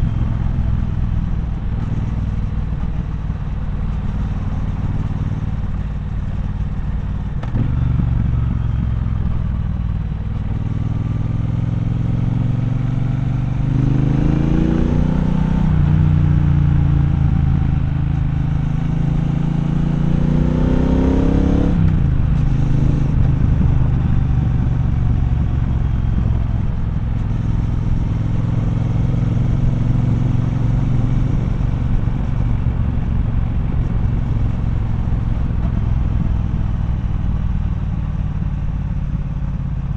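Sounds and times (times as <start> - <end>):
motorcycle engine revving: 10.5 - 39.6.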